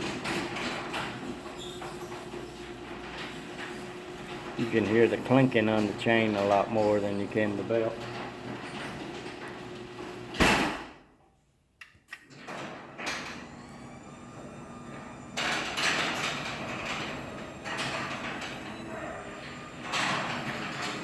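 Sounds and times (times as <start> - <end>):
garage door opener running: 0.0 - 10.9, 12.2 - 21.0
garage door thud: 0.0 - 11.1.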